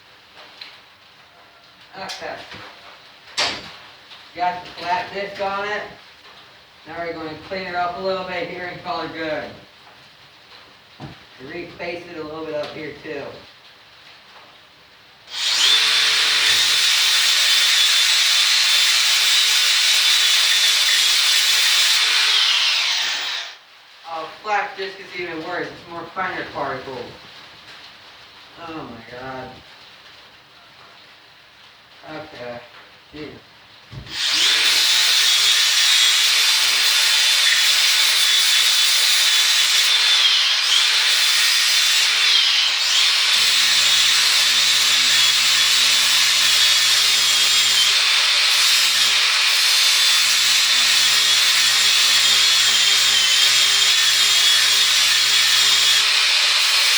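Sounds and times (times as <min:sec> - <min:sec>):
angle grinder grinding metal: 0:15.3 - 0:23.6, 0:34.1 - 0:56.9.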